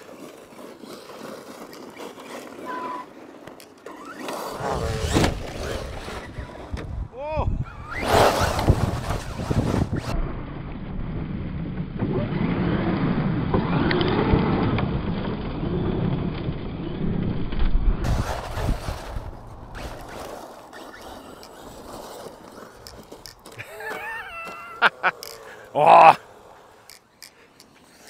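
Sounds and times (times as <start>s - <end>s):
tyres on gravel: 0.0s - 10.2s, 18.0s - 28.0s
electric motor whining: 4.0s - 6.9s.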